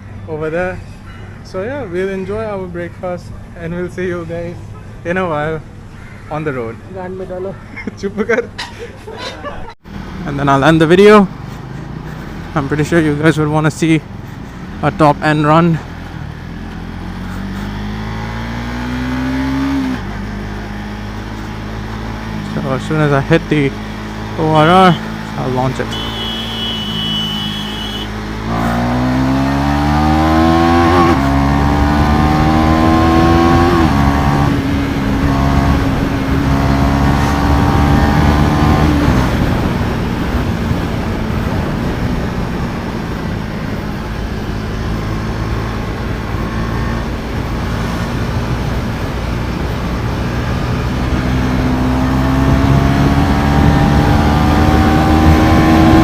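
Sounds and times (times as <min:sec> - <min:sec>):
motorcycle engine accelerating: 0:14.6 - 0:56.0
wind rush: 0:30.4 - 0:51.1.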